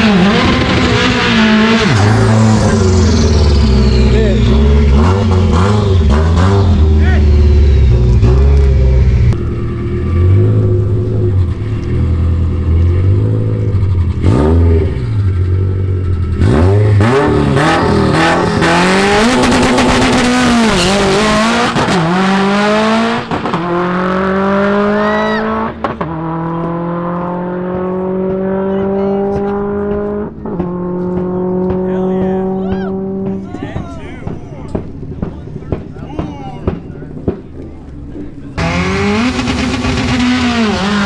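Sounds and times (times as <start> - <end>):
car engine revving and accelerating: 0.0 - 41.0.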